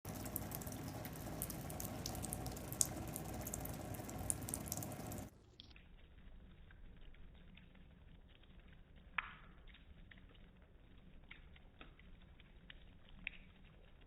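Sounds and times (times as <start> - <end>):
running tap water: 0.0 - 5.3
cat lapping water: 0.1 - 5.3.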